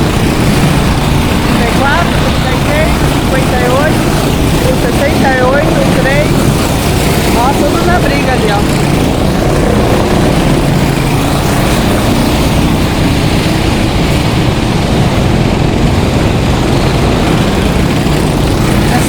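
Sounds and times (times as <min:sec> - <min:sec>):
go-kart engines racing past: 0:00.0 - 0:19.0.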